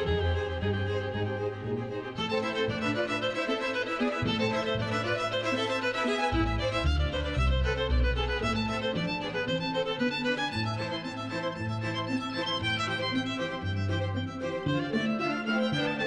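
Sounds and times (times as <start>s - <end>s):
bass notes: 0.0s - 3.2s, 6.2s - 9.5s
fiddle melody: 0.0s - 16.0s.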